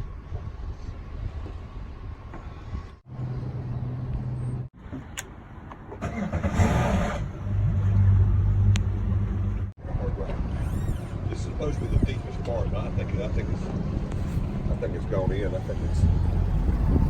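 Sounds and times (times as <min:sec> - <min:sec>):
engine humming: 0:03.1 - 0:17.0.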